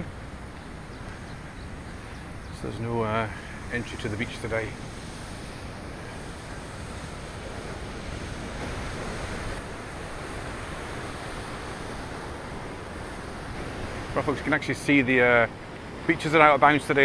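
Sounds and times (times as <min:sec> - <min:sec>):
wind buffeting microphone: 0:00.0 - 0:14.7
stormy sea surf rushing: 0:00.0 - 0:17.0.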